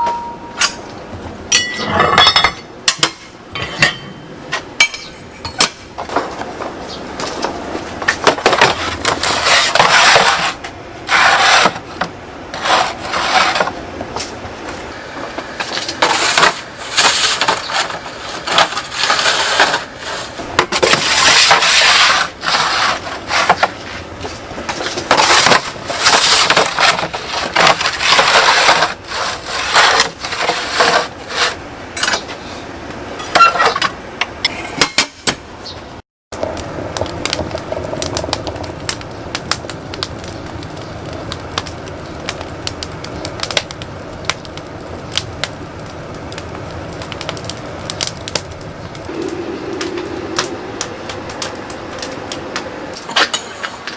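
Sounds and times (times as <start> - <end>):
wood scraping and clattering: 3.6 - 33.9.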